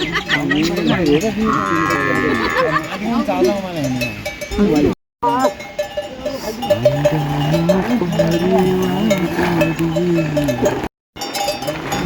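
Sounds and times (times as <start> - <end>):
animal calls: 0.0 - 2.9
livestock bells clanking: 0.0 - 12.0.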